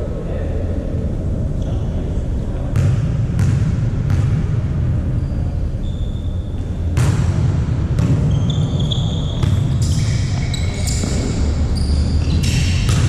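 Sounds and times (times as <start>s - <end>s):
sneakers squeaking on gym floor: 5.2s - 7.0s, 8.0s - 13.0s.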